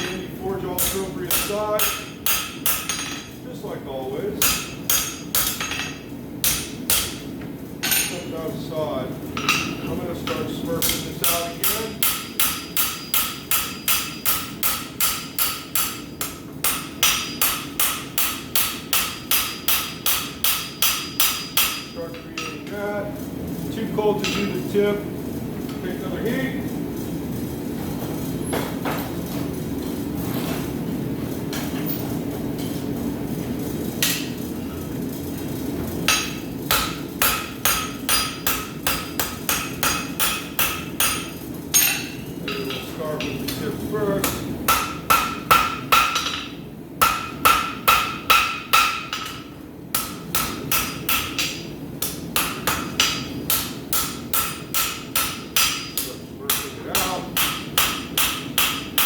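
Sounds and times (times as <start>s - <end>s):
hammer striking steel on anvil: 0.0s - 3.4s, 4.4s - 8.3s, 9.4s - 22.8s, 24.2s - 24.7s, 34.0s - 34.4s, 36.1s - 59.0s.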